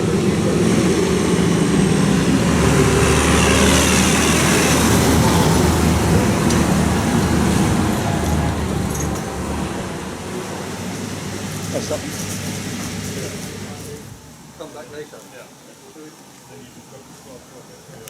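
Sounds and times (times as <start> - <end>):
tractor engine running: 0.0 - 14.2.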